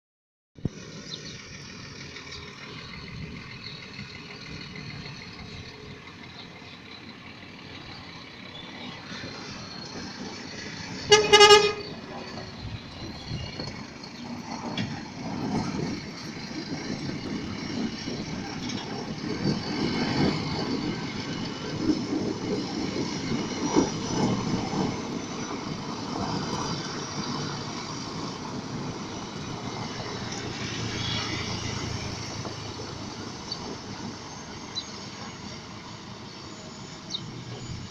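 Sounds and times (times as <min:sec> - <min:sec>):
diesel engine rumble: 0:00.6 - 0:37.9
truck horn: 0:11.0 - 0:12.2.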